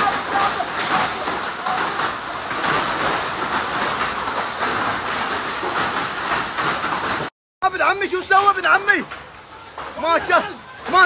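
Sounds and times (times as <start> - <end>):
feet splashing through water: 0.0 - 7.3
heavy rain on tiles: 0.0 - 11.0.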